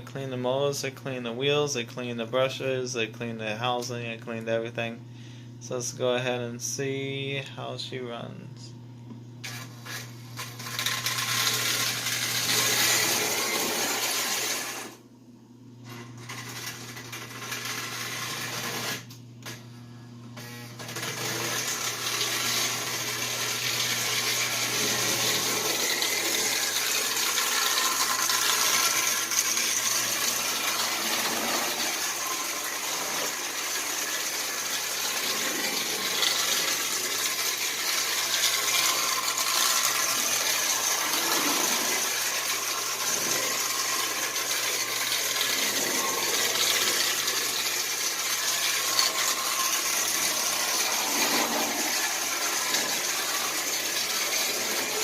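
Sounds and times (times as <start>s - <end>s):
toy train motor whirring: 9.4s - 15.0s, 15.9s - 19.2s, 20.4s - 55.0s
toy train wheels rattling on rails: 10.4s - 12.9s, 24.2s - 55.0s.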